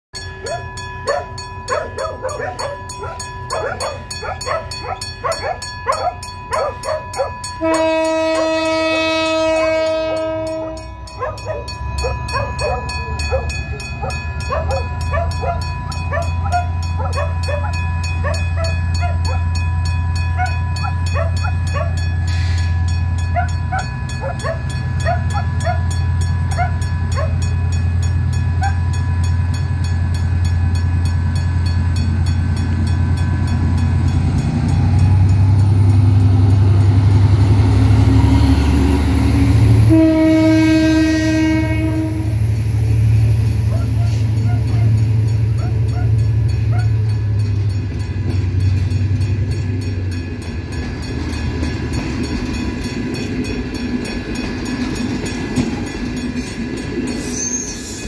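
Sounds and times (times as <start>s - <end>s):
diesel engines droning: 0.3s - 58.0s
dogs barking: 0.4s - 7.4s, 11.1s - 19.5s, 20.4s - 22.0s, 23.3s - 25.9s, 26.5s - 27.4s, 43.6s - 47.0s
locomotive horn blast: 7.2s - 13.5s, 37.6s - 42.6s.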